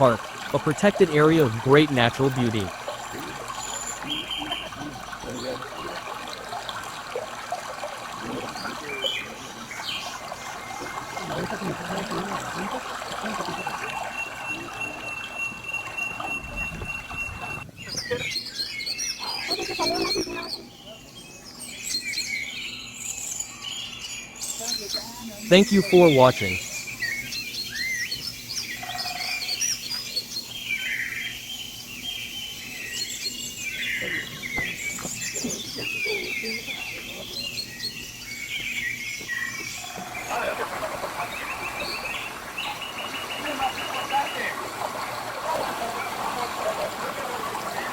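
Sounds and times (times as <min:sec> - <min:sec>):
stream water trickling: 0:00.0 - 0:20.5, 0:25.6 - 0:47.9
bird chirps: 0:01.8 - 0:06.0, 0:13.5 - 0:40.5.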